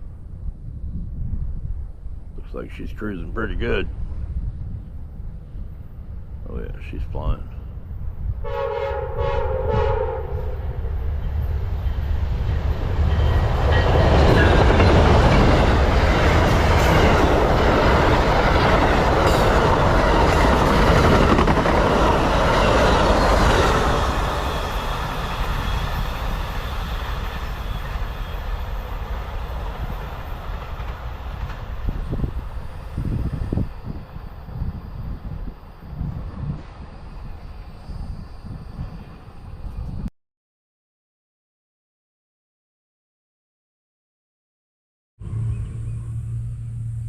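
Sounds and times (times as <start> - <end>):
passenger train passing: 0.0 - 40.1, 45.2 - 47.0.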